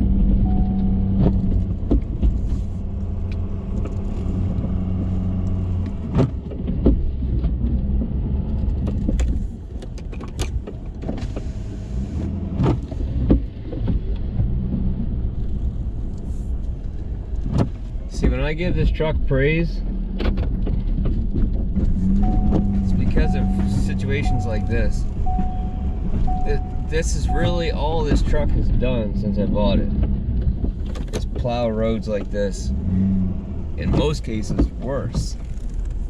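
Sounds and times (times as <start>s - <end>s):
sharp knocks and clunks: 20.2s - 28.4s.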